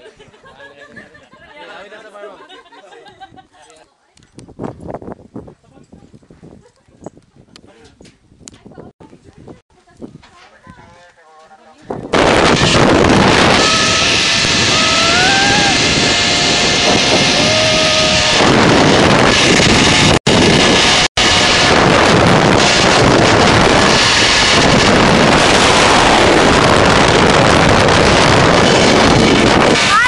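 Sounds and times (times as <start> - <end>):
loud wind rushing over microphone: 4.3 - 10.2, 11.9 - 30.0
held high tone: 13.4 - 18.6.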